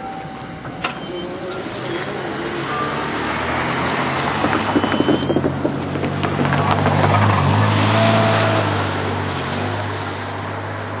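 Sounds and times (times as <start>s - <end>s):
thin squeal: 0.0s - 3.3s.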